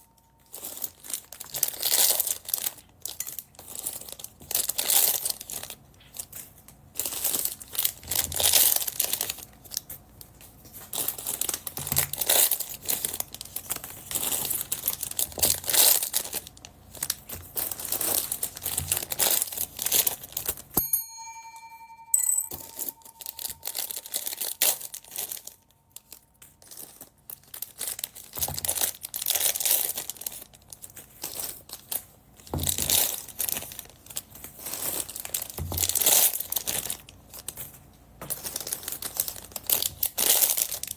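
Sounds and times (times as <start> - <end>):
plastic bags crinkling and tearing: 0.3 - 20.7, 24.9 - 40.9
short ringing tone: 20.8 - 25.3.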